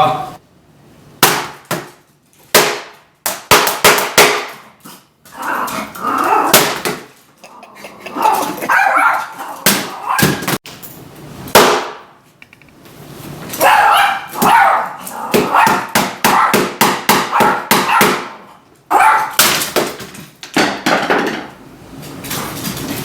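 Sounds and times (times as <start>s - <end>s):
dog barking: 8.2s - 10.3s, 13.6s - 16.6s, 17.2s - 19.4s.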